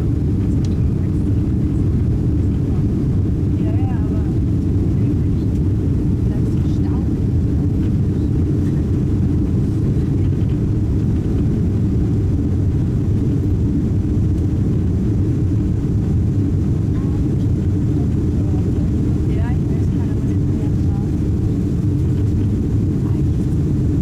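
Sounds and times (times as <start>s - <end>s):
airliner engine rumble: 0.0s - 24.0s
faint voices: 7.8s - 10.5s.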